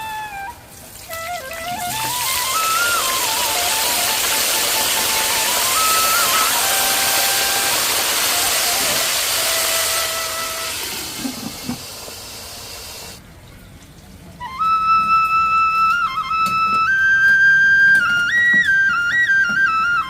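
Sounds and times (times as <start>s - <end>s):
faint music: 0.0s - 10.6s, 13.2s - 20.0s
flute melody of long notes: 0.0s - 11.5s, 14.3s - 20.0s
steady hiss: 0.0s - 13.6s.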